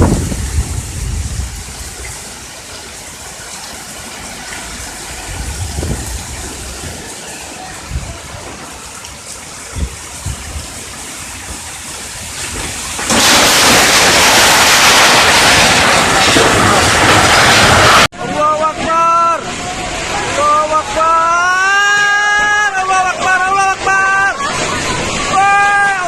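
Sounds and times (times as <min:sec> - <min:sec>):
wind gusts buffeting microphone: 0:00.0 - 0:02.4, 0:04.7 - 0:18.1
wind-driven rain: 0:00.0 - 0:26.0.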